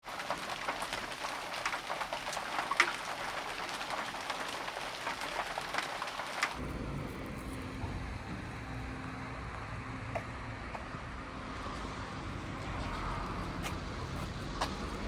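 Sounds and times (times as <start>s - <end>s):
rain falling: 0.0s - 6.6s
raindrops hitting close by: 0.0s - 6.6s.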